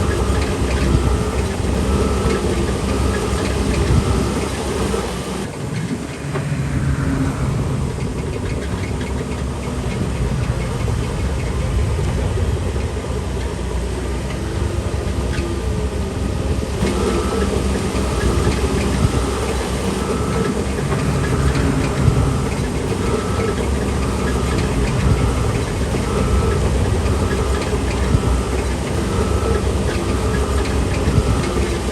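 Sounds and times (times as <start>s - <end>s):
short high beeps: 0.0s - 5.5s
heavy diesel machinery running: 0.0s - 31.9s.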